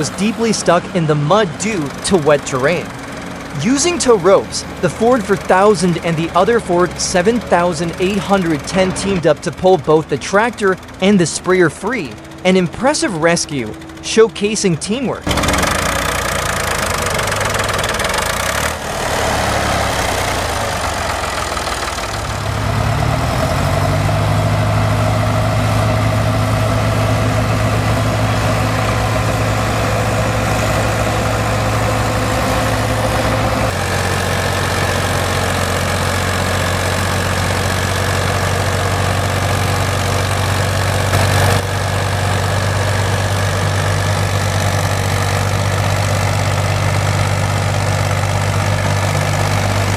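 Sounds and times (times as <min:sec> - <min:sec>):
tractor engines running steadily: 0:00.0 - 0:49.9.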